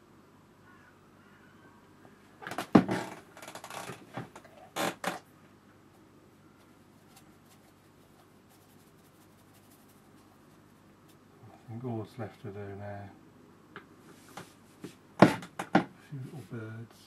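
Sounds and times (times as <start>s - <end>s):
sharp knock: 15.2s - 15.9s.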